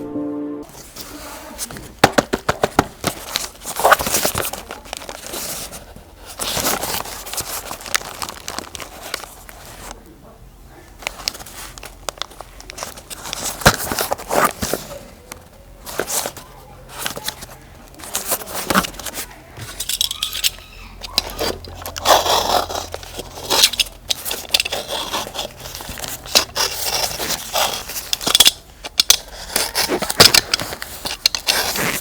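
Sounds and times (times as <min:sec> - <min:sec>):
packaging crinkling and tearing: 0:00.7 - 0:10.0, 0:10.8 - 0:32.0.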